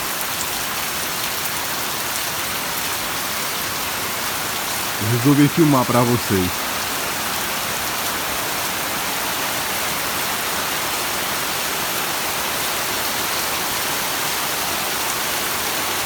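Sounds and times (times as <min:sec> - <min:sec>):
heavy rain hissing: 0:03.3 - 0:08.0.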